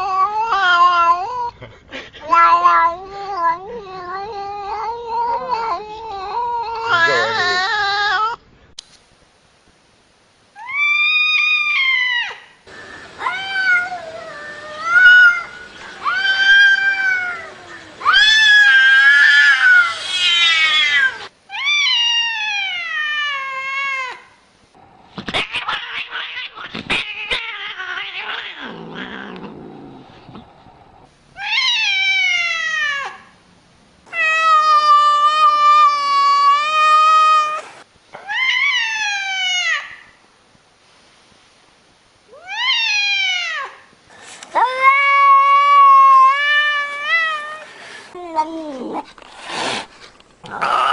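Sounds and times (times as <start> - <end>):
cat yowling: 2.3 - 8.4, 13.2 - 24.2, 25.4 - 29.6, 38.2 - 40.0, 42.4 - 43.8.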